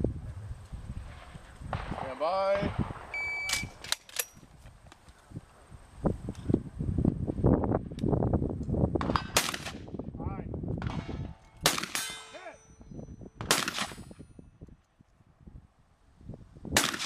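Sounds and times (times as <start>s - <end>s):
shotgun shots: 9.0s - 9.9s, 10.8s - 12.5s, 13.4s - 14.2s, 16.8s - 17.0s
steel target clanging: 10.9s - 13.0s.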